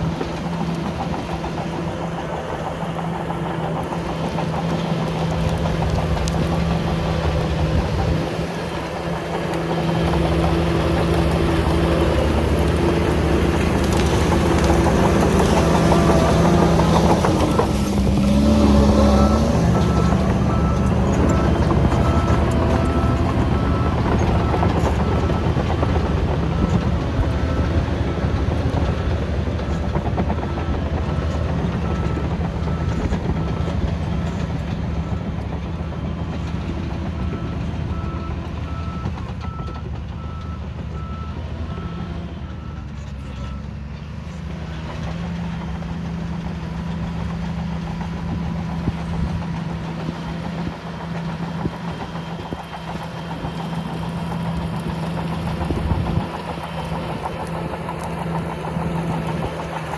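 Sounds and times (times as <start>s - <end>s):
bulldozer diesel engine running: 0.0s - 59.9s
reversing alarm beeping: 10.0s - 43.7s.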